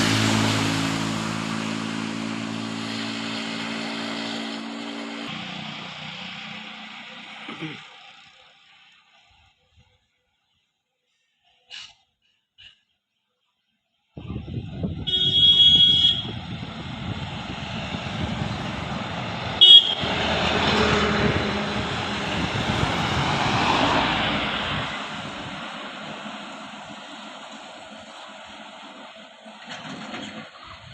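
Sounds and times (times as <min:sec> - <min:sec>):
truck passing: 0:00.0 - 0:08.9, 0:14.9 - 0:30.9
vehicle horn: 0:15.0 - 0:16.5, 0:19.6 - 0:21.4.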